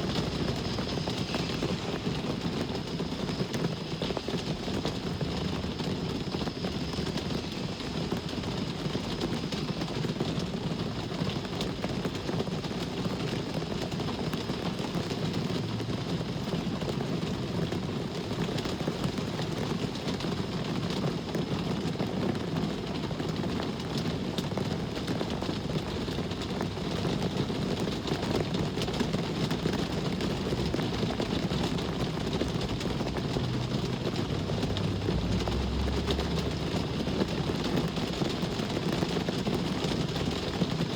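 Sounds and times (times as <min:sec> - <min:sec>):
low traffic rumble: 0:00.0 - 0:12.2, 0:22.2 - 0:40.9
steady rain falling: 0:00.0 - 0:40.9.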